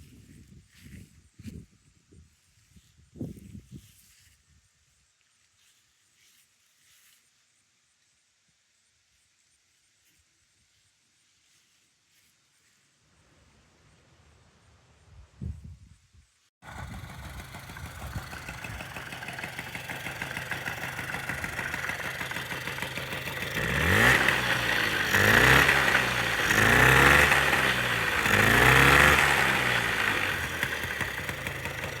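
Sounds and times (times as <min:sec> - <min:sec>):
moped engine idling and revving: 0:16.6 - 0:32.0.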